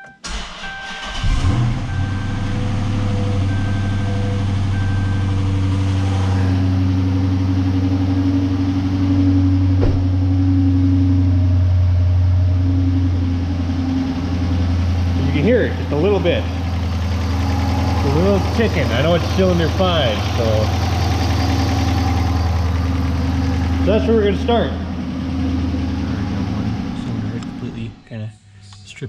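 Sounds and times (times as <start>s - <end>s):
car engine idling: 0.2s - 28.2s
faint engine ticking: 9.0s - 28.0s.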